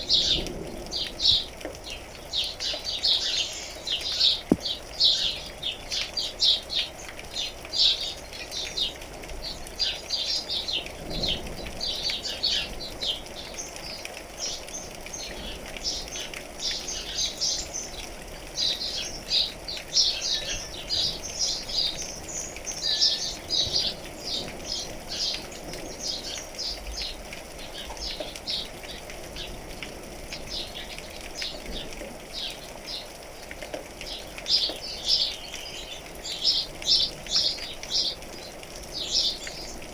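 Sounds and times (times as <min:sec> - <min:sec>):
small birds chirping: 0:00.0 - 0:33.2, 0:34.0 - 0:39.9
rain hissing: 0:00.0 - 0:39.9.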